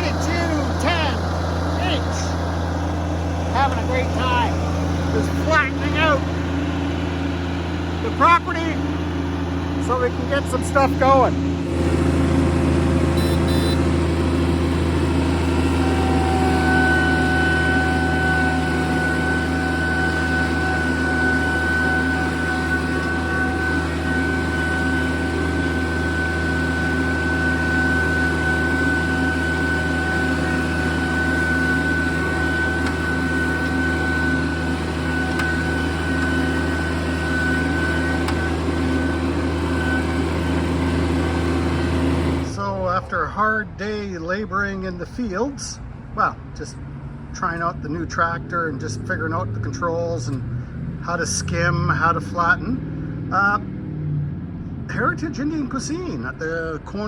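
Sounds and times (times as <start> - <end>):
high whine: 0.0 - 53.6
tractor diesel engine running: 0.0 - 57.0.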